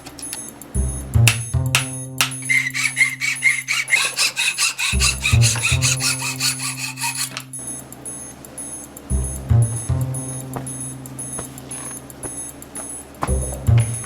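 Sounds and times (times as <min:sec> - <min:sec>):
file scraping: 0:02.2 - 0:07.6
background music with a beat: 0:07.6 - 0:14.0.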